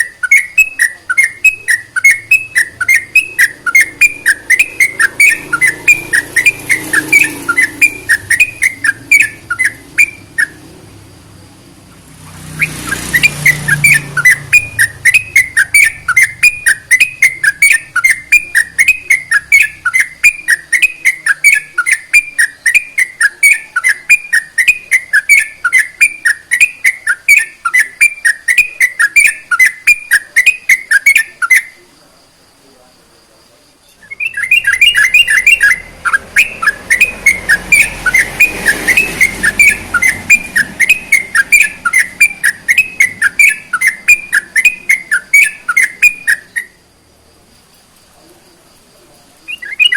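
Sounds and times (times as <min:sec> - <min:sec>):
bird whistling repeated notes: 0:00.0 - 0:31.9, 0:33.9 - 0:47.0, 0:49.4 - 0:49.9.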